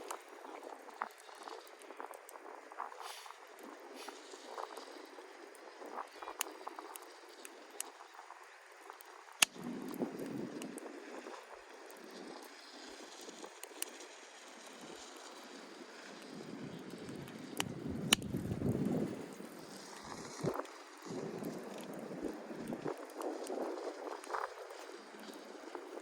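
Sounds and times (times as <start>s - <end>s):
campfire crackling and popping: 0.0s - 26.0s
wind gusts on microphone: 16.3s - 26.0s.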